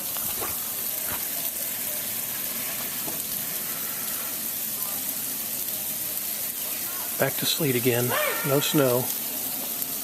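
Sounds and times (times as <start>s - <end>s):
sleet hissing: 3.3s - 5.0s, 6.6s - 9.2s.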